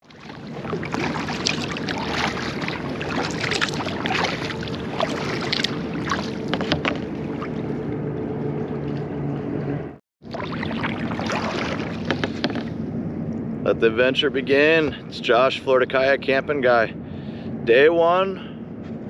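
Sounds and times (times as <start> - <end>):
water splashing and dripping: 0.0 - 8.0, 10.2 - 12.7.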